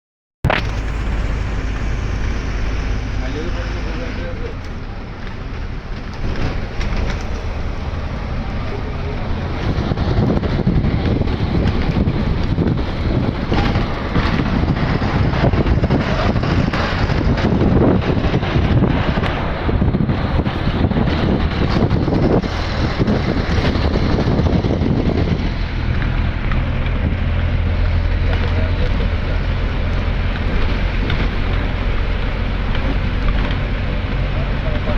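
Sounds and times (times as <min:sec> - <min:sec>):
road noise: 0:00.4 - 0:34.9
motorcycle engine: 0:00.5 - 0:34.9
wind buffeting microphone: 0:00.5 - 0:34.9.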